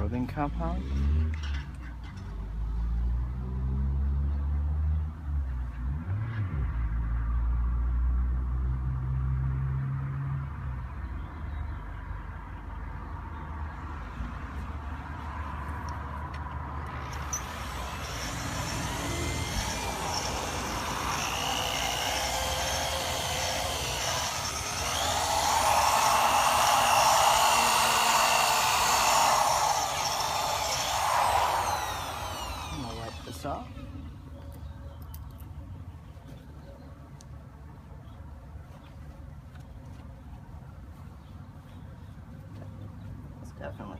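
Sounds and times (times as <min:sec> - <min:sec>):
electric drill polishing whirring: 0:17.1 - 0:33.6.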